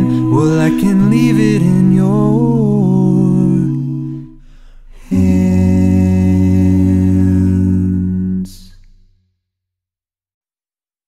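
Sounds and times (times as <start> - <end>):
male vocal quartet singing: 0.0 - 4.4, 5.0 - 8.8.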